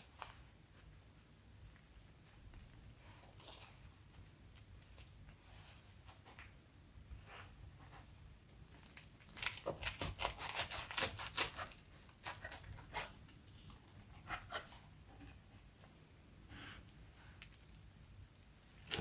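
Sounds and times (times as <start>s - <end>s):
packaging tearing and crinkling: 8.7s - 12.9s.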